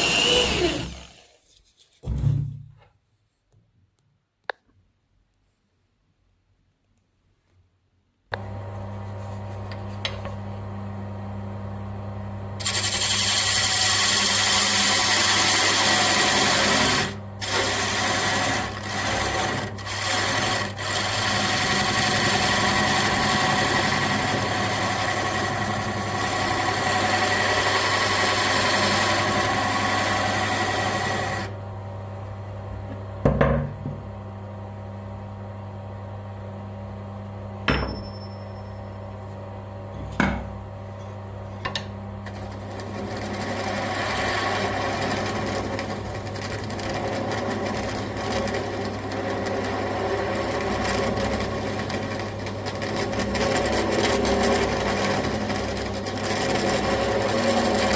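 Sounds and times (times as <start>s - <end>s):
bench grinder motor humming: 0.0s - 1.4s, 12.6s - 31.6s, 41.7s - 57.9s
abrasive rasp of grinding: 0.0s - 1.6s, 12.6s - 31.5s, 42.3s - 57.9s.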